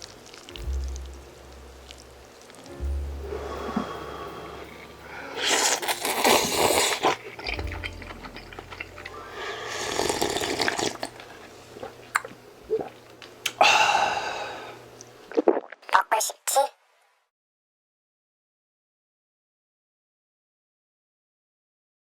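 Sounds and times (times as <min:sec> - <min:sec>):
noodles being slurped: 0:04.7 - 0:13.6.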